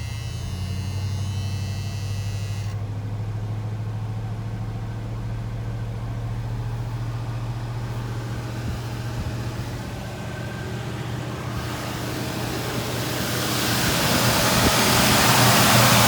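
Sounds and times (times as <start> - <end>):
truck engine idling: 0.0 - 16.0
high-pitched whine: 7.0 - 16.0.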